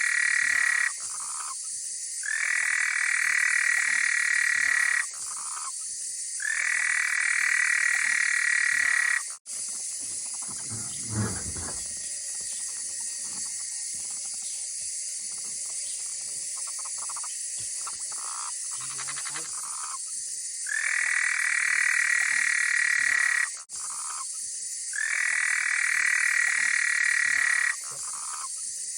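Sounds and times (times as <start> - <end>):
frog trilling calls: 0.0 - 1.6, 2.2 - 5.7, 6.4 - 9.3, 10.4 - 12.1, 16.7 - 20.0, 20.7 - 24.2, 24.9 - 28.5
high-pitched frog chorus: 0.0 - 1.6, 2.2 - 5.7, 6.4 - 9.4, 15.6 - 24.3, 24.9 - 28.6.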